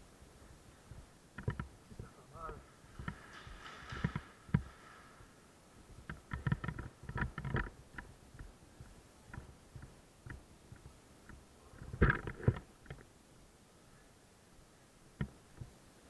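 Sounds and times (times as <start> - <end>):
irregular clicks and knocks: 0.8 - 13.1, 15.2 - 15.8
faint ticks: 6.0 - 13.1.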